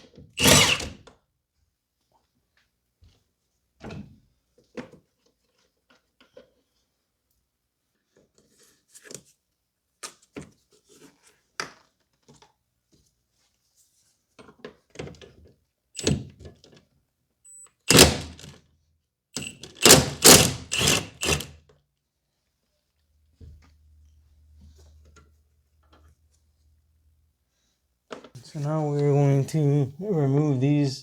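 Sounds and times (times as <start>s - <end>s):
rapid ratchet clicking: 19.4s - 21.5s.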